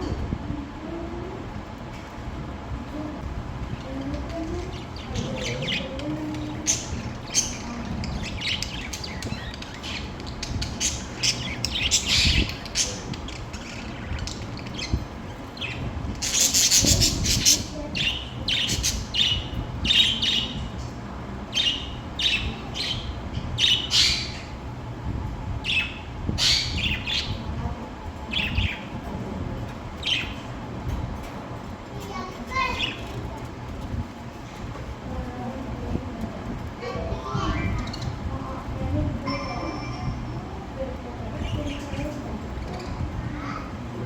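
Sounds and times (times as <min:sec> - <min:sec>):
budgerigars chirping: 0:06.5 - 0:20.6, 0:21.5 - 0:24.6, 0:25.6 - 0:27.4.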